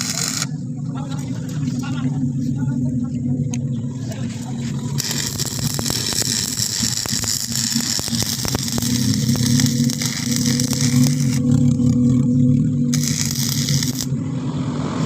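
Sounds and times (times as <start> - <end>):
arc welding crackling hiss: 0.0 - 0.5, 5.0 - 11.5, 12.9 - 14.1
low machine hum: 0.0 - 15.0.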